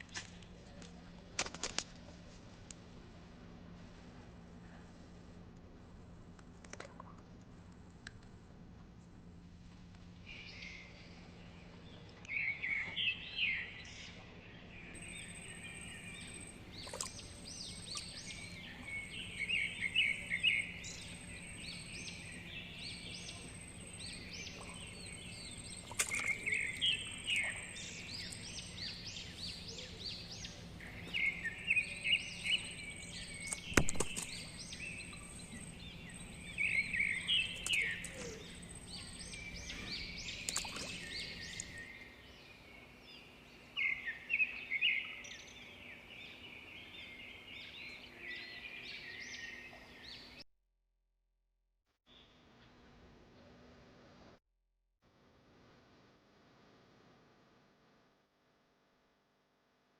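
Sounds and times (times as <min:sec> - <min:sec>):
faint steady hum: 0:00.0 - 0:50.4
birds chirping: 0:10.3 - 0:50.4
sharp click: 0:33.4 - 0:34.4.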